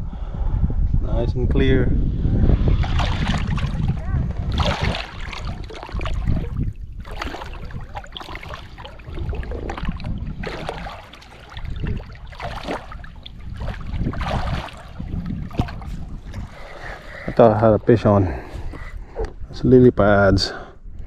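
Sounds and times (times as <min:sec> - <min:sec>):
wind rumble on microphone: 0:00.0 - 0:21.0
water splashing against boat: 0:02.8 - 0:17.6.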